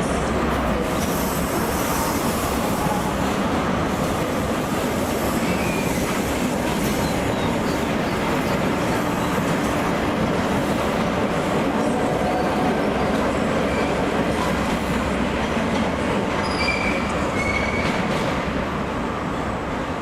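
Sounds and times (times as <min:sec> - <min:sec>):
train wheels on rails: 0:00.0 - 0:20.0
faint brief squeal: 0:16.4 - 0:18.0.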